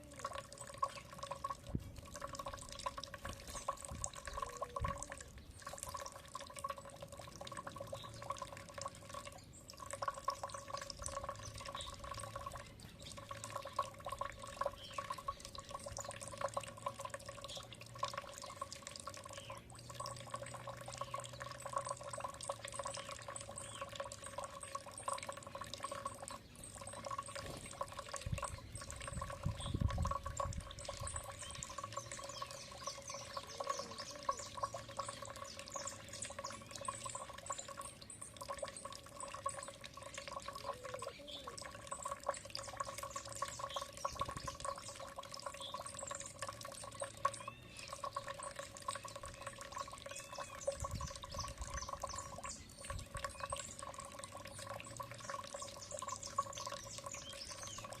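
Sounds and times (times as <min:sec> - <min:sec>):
water trickling and dripping: 0:00.0 - 0:58.0
faint bird chirps: 0:19.2 - 0:58.0.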